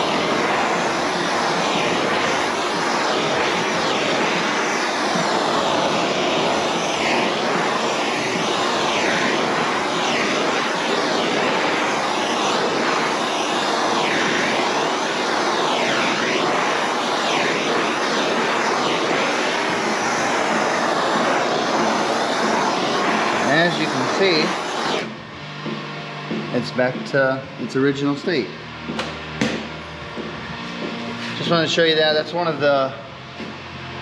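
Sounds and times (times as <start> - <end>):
heat torch blowing: 0.0 - 34.0.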